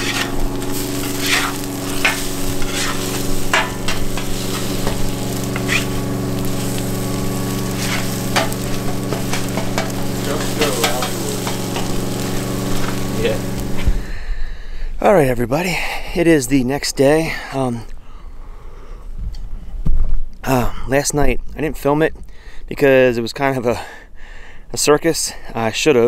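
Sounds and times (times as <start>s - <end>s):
spatula scraping metal: 0.0s - 13.2s
eggs sizzling on griddle: 0.0s - 14.1s
steady low hum: 0.0s - 14.6s.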